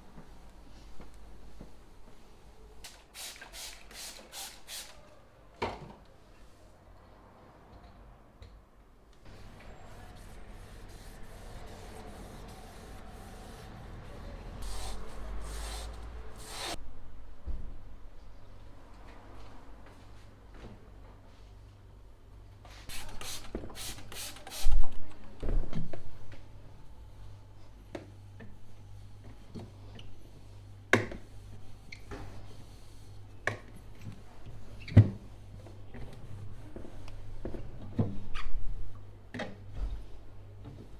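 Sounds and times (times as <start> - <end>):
spray bottle spritzing: 2.9 - 5.0, 14.6 - 16.8, 22.9 - 24.7
rubbing or wiping: 9.3 - 16.8, 22.9 - 24.7.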